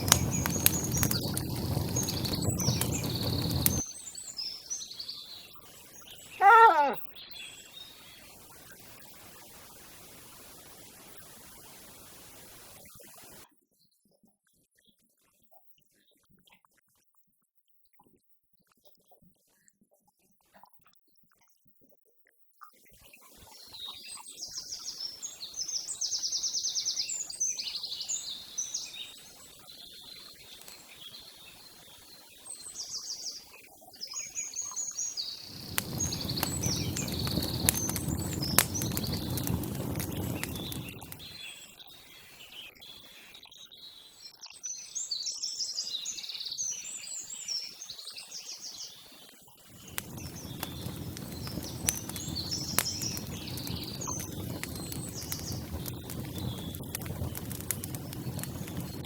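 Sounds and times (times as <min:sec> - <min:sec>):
loud noise with clicks: 0:00.0 - 0:03.8, 0:35.5 - 0:41.3, 0:49.9 - 0:59.0
small birds chirping: 0:00.0 - 0:03.9, 0:34.0 - 0:48.9, 0:49.7 - 0:59.0.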